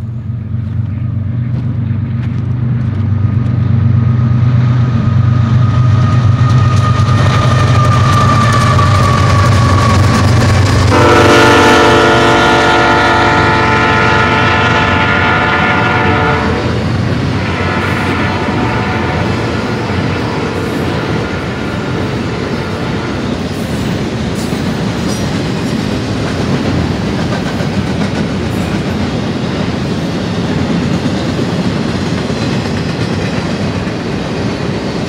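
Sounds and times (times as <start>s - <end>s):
diesel locomotive engines rumbling: 0.0s - 35.0s
locomotive air horn blast: 10.9s - 23.3s.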